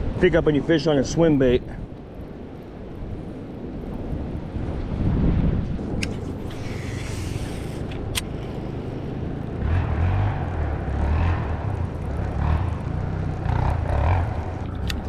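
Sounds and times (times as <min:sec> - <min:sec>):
wind rumble on microphone: 0:00.0 - 0:15.0
distant atv engines revving: 0:06.5 - 0:15.0.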